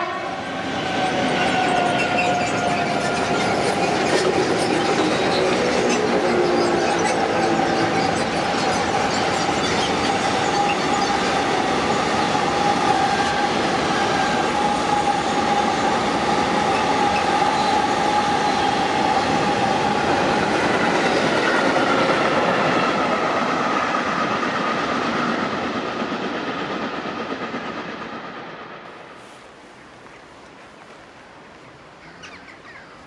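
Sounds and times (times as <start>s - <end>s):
high squeal from train wheels: 0.0s - 24.6s
train wheels rumbling and clattering: 0.3s - 32.6s.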